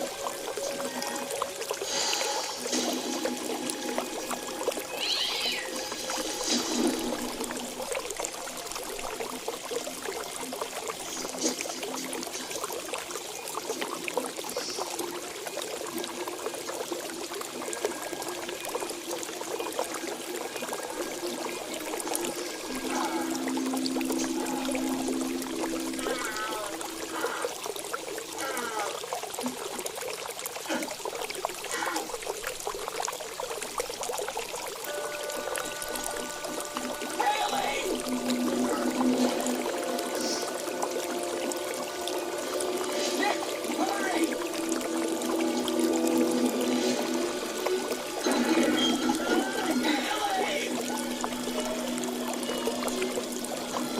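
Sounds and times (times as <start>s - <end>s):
water trickling and splashing: 0.0s - 53.9s
faint bird call: 4.9s - 5.8s.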